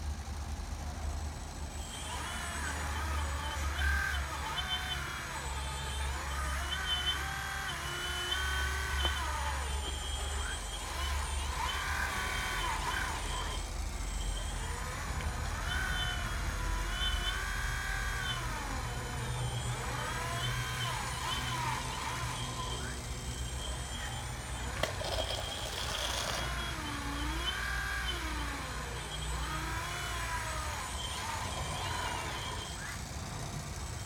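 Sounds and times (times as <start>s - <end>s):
hydraulic pump whining: 0.0s - 34.0s.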